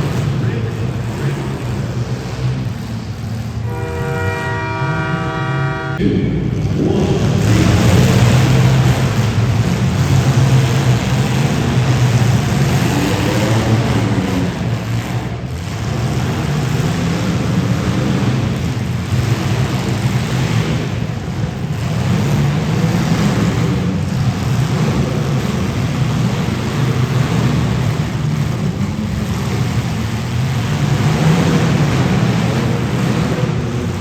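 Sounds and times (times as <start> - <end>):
car engines rumbling: 0.0 - 34.0
horn blast: 3.5 - 8.7.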